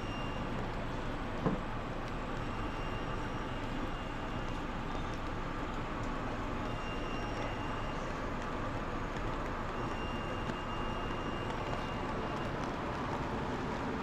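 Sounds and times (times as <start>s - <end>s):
rain: 0.0s - 14.0s.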